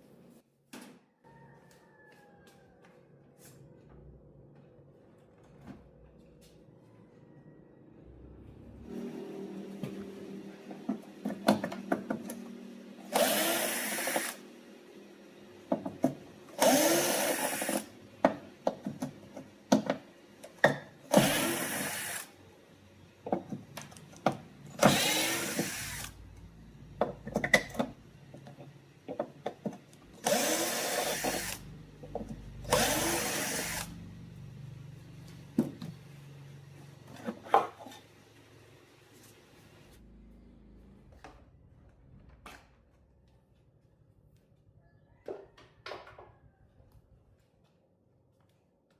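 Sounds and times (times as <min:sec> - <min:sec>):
handheld power tool motor: 0:11.1 - 0:14.7, 0:16.0 - 0:17.9, 0:21.0 - 0:22.4, 0:24.7 - 0:26.2, 0:30.1 - 0:34.0.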